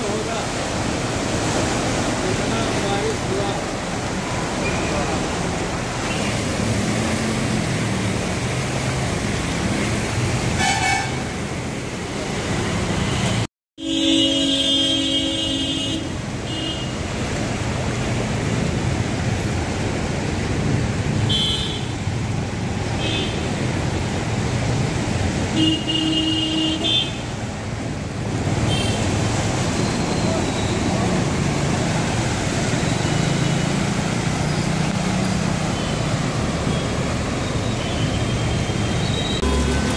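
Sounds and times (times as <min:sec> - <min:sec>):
traffic through standing water: 0:00.0 - 0:39.9
vehicle horns honking: 0:10.5 - 0:11.4, 0:13.0 - 0:17.0, 0:21.3 - 0:22.0, 0:25.5 - 0:27.3, 0:37.8 - 0:39.9.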